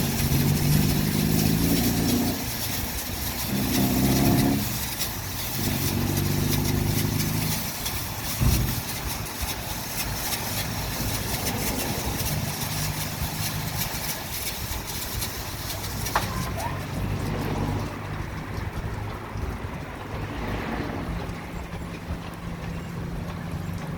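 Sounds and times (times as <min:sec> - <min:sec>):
water and brushes hissing: 0:00.0 - 0:18.2
low motor hum: 0:00.0 - 0:23.9.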